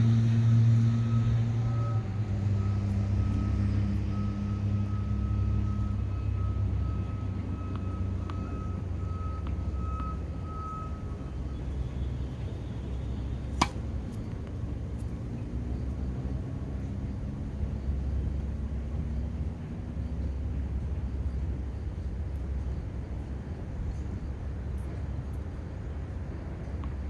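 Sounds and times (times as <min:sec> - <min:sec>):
tennis racket striking ball: 0:12.9 - 0:14.4.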